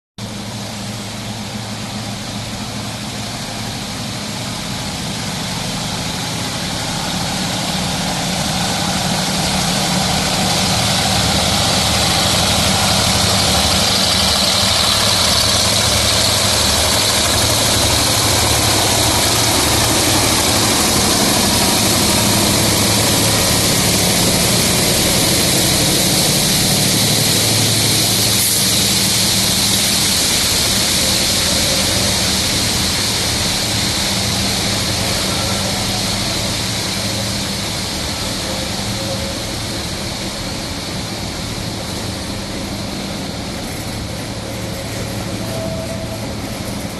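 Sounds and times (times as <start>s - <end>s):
diesel locomotive engines throbbing: 0.2s - 46.9s
rain hissing: 0.2s - 46.9s.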